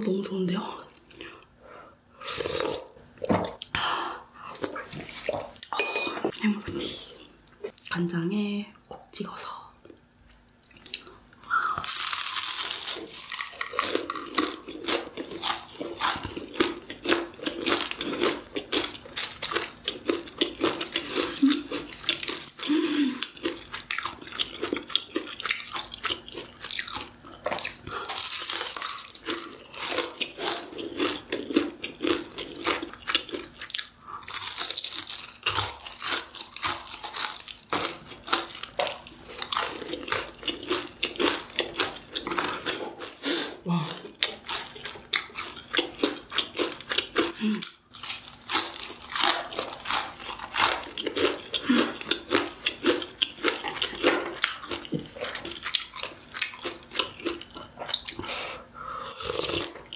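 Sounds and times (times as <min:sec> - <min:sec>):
crunchy chewing: 0:10.6 - 0:43.2, 0:44.0 - 0:58.3.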